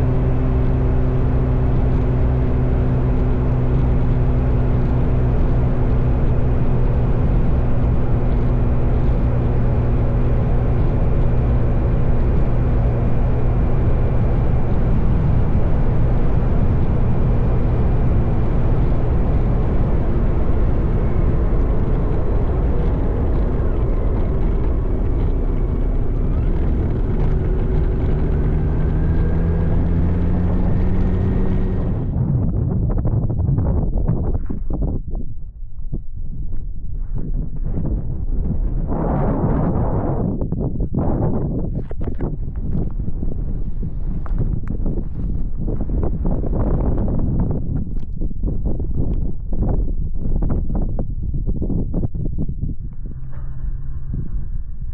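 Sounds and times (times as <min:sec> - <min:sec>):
motorcycle engine running: 0:00.0 - 0:33.1, 0:41.0 - 0:50.5
wind and road noise: 0:00.0 - 0:54.9.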